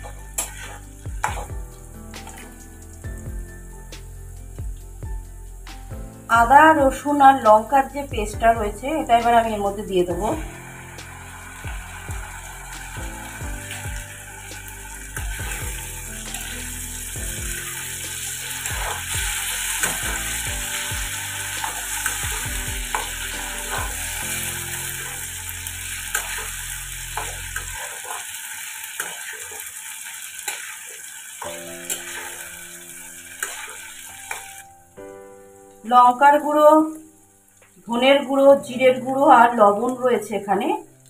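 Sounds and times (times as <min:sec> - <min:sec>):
spatula scraping a pan: 0:00.0 - 0:02.6, 0:10.5 - 0:31.0
vegetables sizzling in oil: 0:00.0 - 0:41.0.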